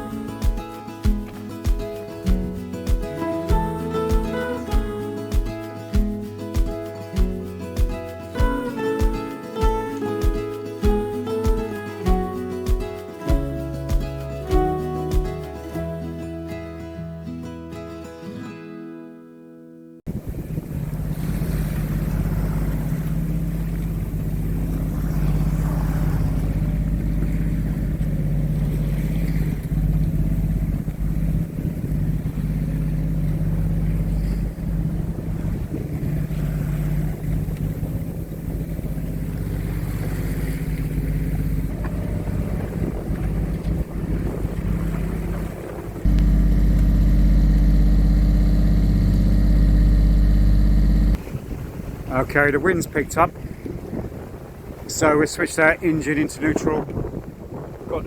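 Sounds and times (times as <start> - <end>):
boat engine droning: 0.0 - 6.6, 20.1 - 52.9
water noise: 0.0 - 17.4, 20.1 - 58.0
wind: 0.0 - 18.8, 20.1 - 58.0.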